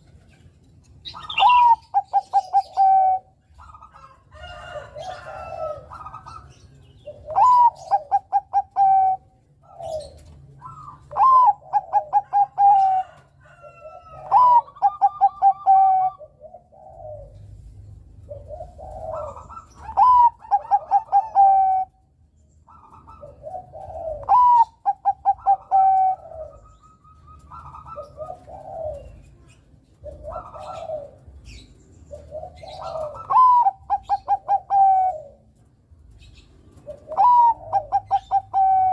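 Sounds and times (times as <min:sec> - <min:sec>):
quiet dove coos: 0:01.0 - 0:22.1, 0:22.7 - 0:38.9
dove song phrase: 0:01.1 - 0:03.4.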